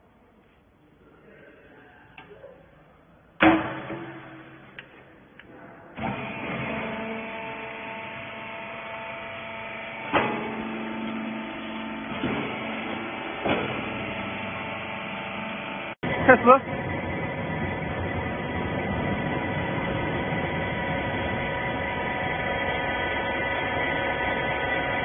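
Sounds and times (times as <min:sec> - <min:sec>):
loud metallic clank: 0:03.4 - 0:04.8
hydraulic pump humming: 0:03.4 - 0:25.0.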